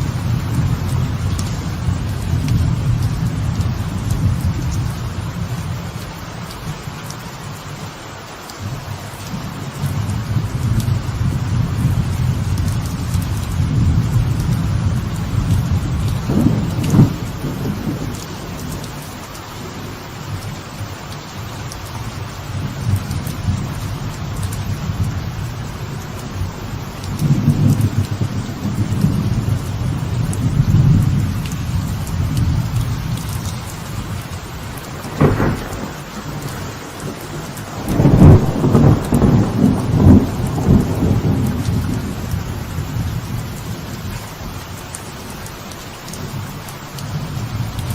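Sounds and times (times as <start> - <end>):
light rain on a veranda: 0.0 - 47.9
rolling thunder: 10.2 - 19.0, 27.2 - 43.9.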